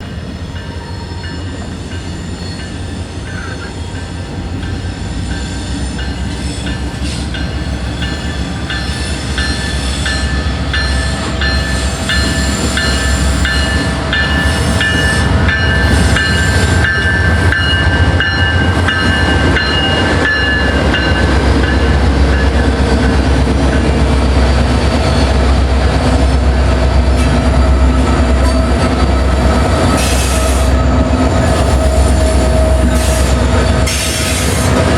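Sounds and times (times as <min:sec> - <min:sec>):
diesel locomotive engine rumble: 0:00.0 - 0:34.9
bell ringing steadily: 0:00.6 - 0:23.8.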